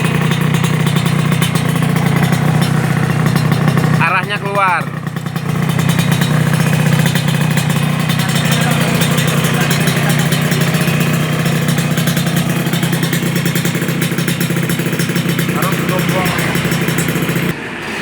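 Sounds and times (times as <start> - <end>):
motorcycle engine idling: 0.0 - 17.6.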